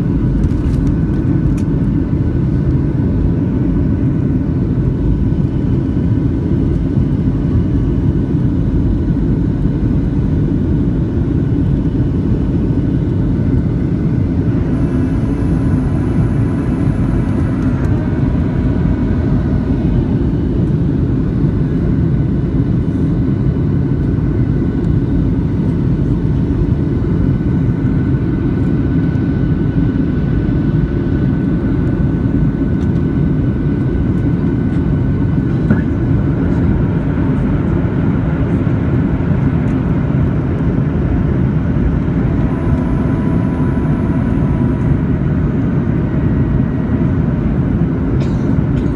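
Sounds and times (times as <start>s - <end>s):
airplane cabin engine and airflow noise: 0.0s - 48.9s
high whine: 11.2s - 22.9s, 40.9s - 47.2s.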